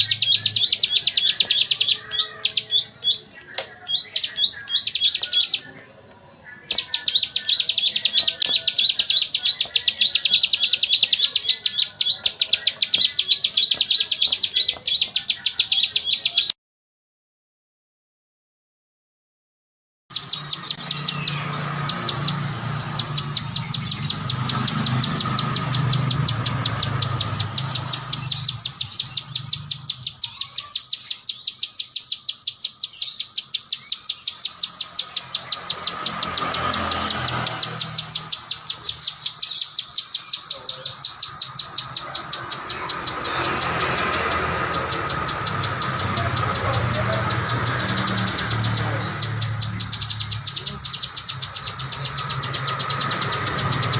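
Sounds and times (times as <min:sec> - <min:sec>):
songbird chipping calls: 0:00.0 - 0:05.9, 0:06.6 - 0:16.6, 0:20.1 - 0:53.9.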